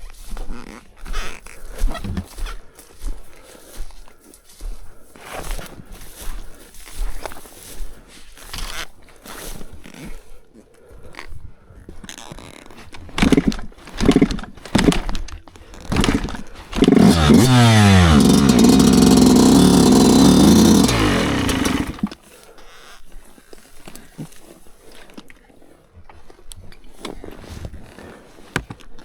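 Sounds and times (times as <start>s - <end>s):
dirt bike engine kick-started: 13.0s - 22.2s
dirt bike engine revving: 13.2s - 15.0s, 15.9s - 22.2s.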